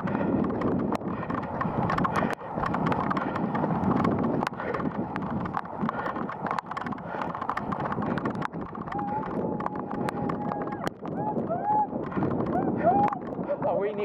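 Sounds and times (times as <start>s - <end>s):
wind buffeting microphone: 0.0s - 14.0s
sharp clicks and taps: 0.5s - 11.2s.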